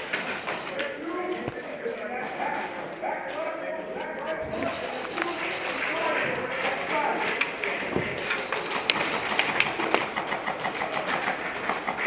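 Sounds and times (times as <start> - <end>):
airsoft guns firing: 4.5 - 12.0.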